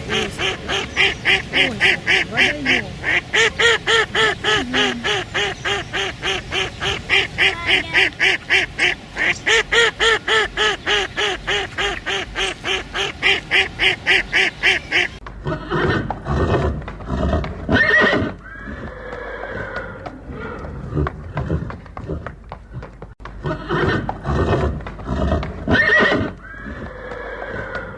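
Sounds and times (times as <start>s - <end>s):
horse neighing: 15.4s - 22.2s, 23.4s - 27.9s.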